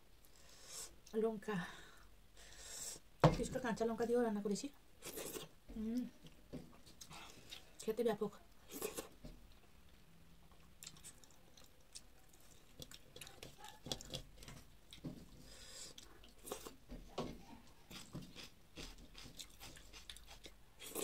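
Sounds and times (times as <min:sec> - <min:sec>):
person chewing with mouth smacks: 0:08.6 - 0:16.8, 0:17.8 - 0:21.0.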